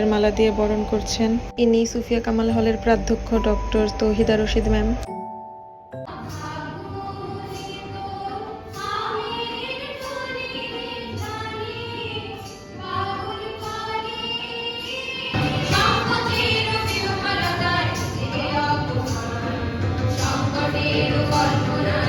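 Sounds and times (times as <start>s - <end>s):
women singing over music: 6.1s - 22.0s.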